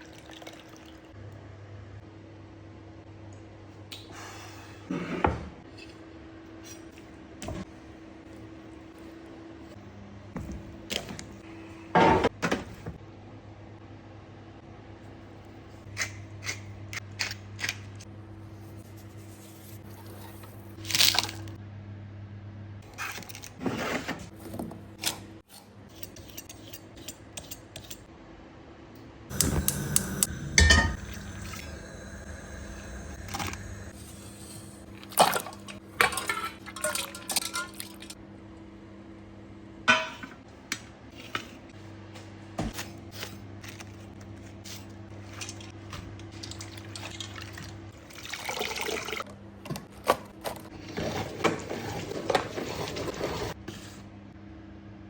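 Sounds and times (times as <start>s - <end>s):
utensils clinking on dishes: 29.3s - 31.8s, 33.3s - 38.2s
steady low hum: 29.3s - 39.8s.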